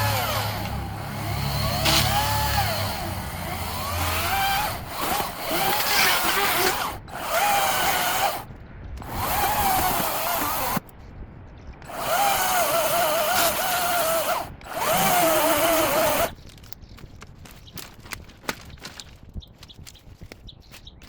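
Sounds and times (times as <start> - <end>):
electric chainsaw whining: 0.0 - 10.8, 11.9 - 16.4.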